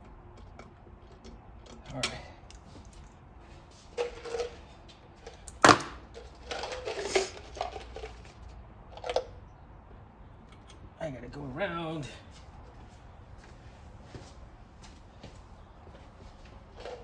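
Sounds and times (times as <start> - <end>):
metal tools clinking: 0.4 - 3.1, 3.7 - 9.3, 16.3 - 17.0.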